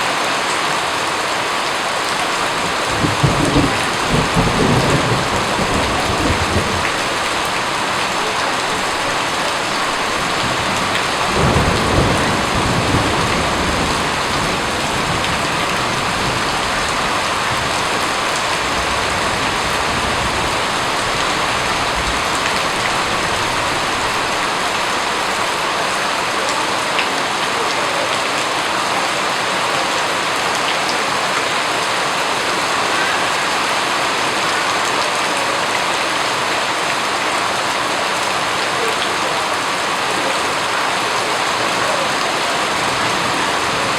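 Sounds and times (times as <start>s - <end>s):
heavy rain falling: 0.0s - 43.9s
thunder rumbling: 2.5s - 25.4s.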